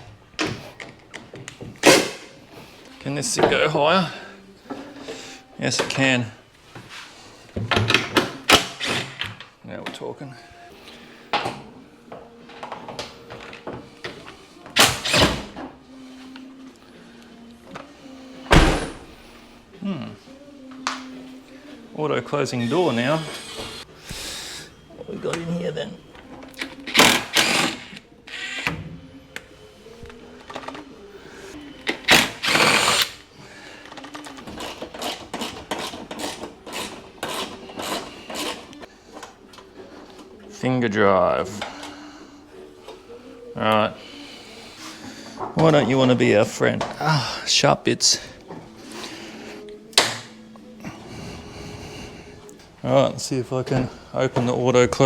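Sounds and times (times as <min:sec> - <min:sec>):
hand ratchet ratcheting: 0:32.1 - 0:33.2, 0:34.0 - 0:38.8.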